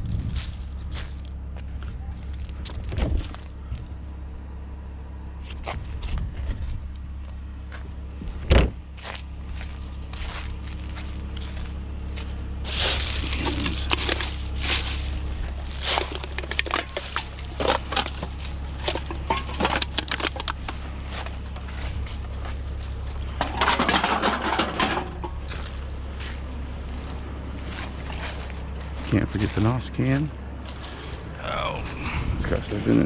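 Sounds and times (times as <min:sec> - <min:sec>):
cans and junk rattling: 0:12.7 - 0:22.2, 0:23.3 - 0:25.8.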